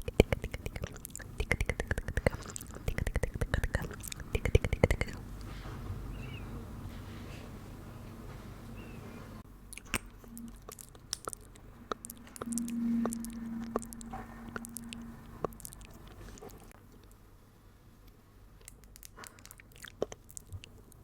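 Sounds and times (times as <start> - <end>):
wet mouth clicks and smacks: 0.0 - 5.2, 9.7 - 17.2, 18.6 - 21.0
low steady hum: 0.0 - 21.0.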